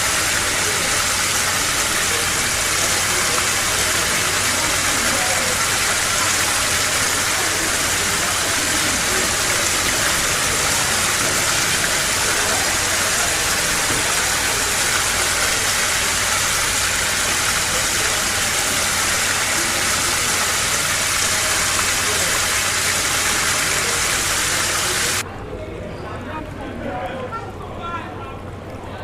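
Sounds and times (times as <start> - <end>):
floodwater rushing: 0.0 - 25.2.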